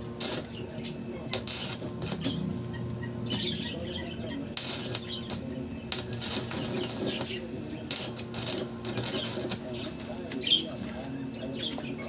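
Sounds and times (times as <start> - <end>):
steady low hum: 0.0 - 12.0
bird chirps: 2.2 - 5.5.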